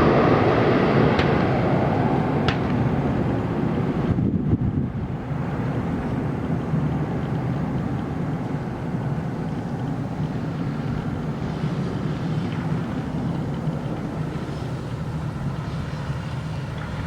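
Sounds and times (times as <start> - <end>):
rushing air: 0.0 - 6.2
jet plane landing rumble: 0.0 - 17.0.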